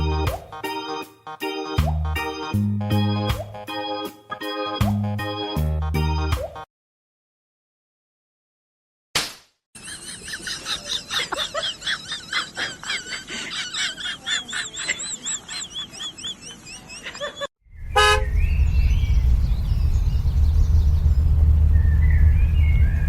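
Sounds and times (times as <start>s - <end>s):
high wavering chirp-like calls: 14.3s - 23.0s
vehicle running noise: 17.7s - 23.0s
short horn toot: 17.9s - 18.3s.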